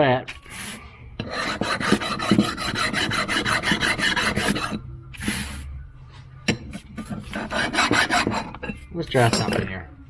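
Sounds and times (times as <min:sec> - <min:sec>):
hand file rasping on metal: 0:01.2 - 0:04.8, 0:06.9 - 0:08.6.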